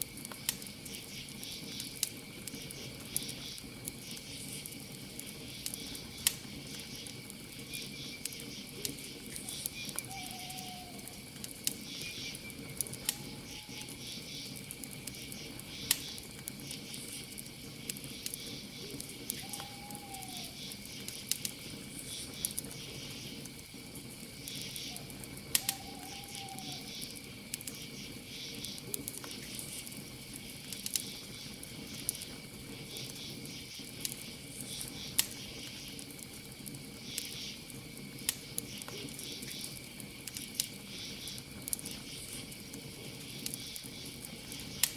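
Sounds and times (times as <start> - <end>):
campfire crackling and popping: 0.0 - 44.9
night insects chirping: 0.0 - 44.9
owl hooting: 9.4 - 11.2, 13.2 - 14.2, 19.3 - 20.7, 24.8 - 27.1.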